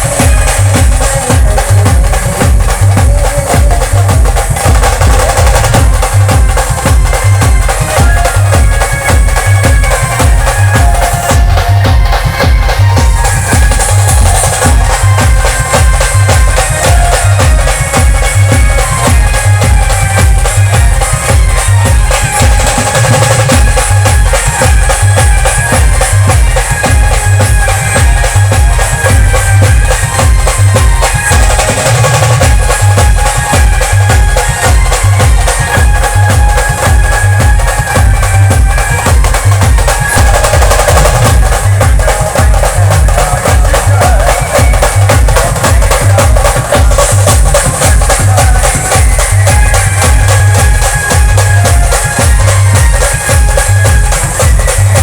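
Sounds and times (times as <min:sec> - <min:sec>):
band music: 0:00.0 - 0:55.0
heavy drum beat: 0:00.0 - 0:55.0.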